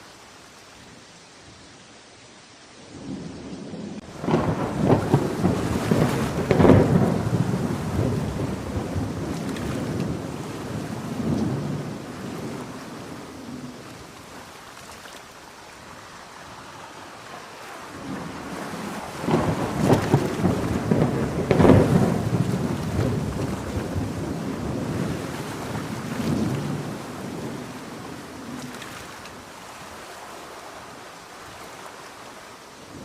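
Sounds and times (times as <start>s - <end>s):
heavy rain: 0.0s - 33.0s
thunder rolling: 3.0s - 13.8s, 17.9s - 29.2s.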